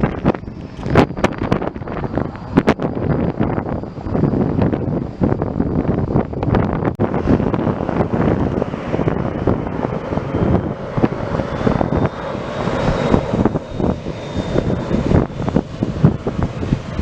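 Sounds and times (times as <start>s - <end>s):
aircraft engine noise: 0.0s - 17.0s
wind buffeting microphone: 0.0s - 17.0s.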